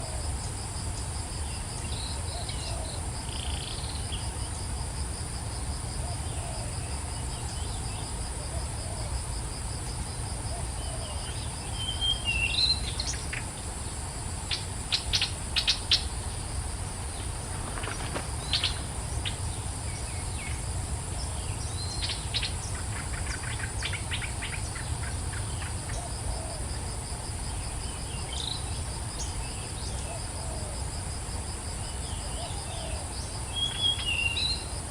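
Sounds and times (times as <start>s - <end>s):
insects trilling: 0.0s - 34.9s.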